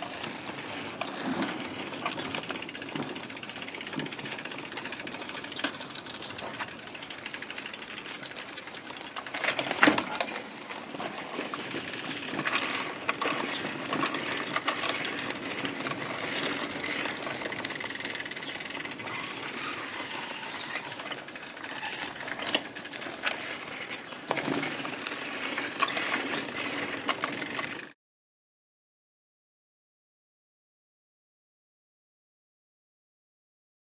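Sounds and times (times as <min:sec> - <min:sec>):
bicycle rattling on road: 0:00.0 - 0:28.0.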